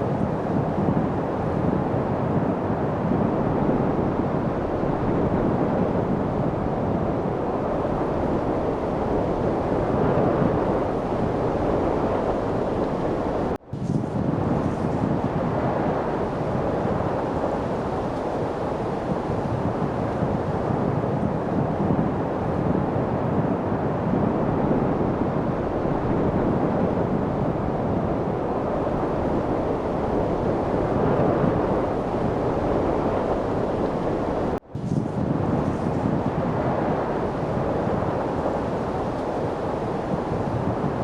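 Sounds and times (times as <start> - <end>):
light wind blowing: 0.0 - 41.0.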